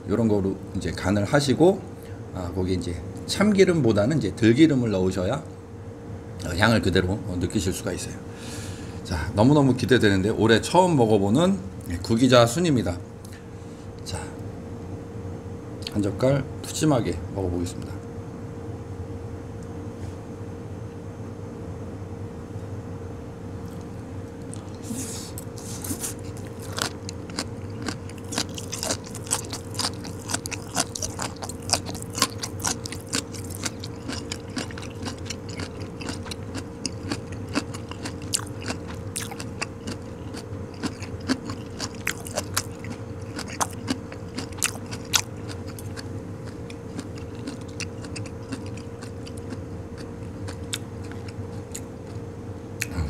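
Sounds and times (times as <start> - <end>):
steady low hum: 0.0 - 53.0
chewing crisp shoots: 23.6 - 52.2.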